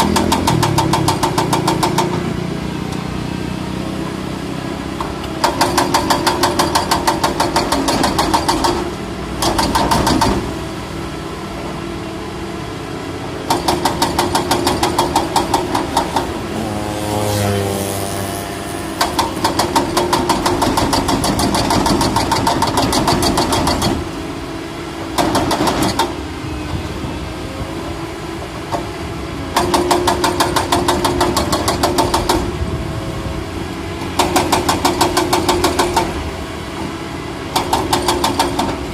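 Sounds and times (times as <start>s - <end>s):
diesel engine running: 8.8s - 38.9s
wavering whine: 16.4s - 19.1s.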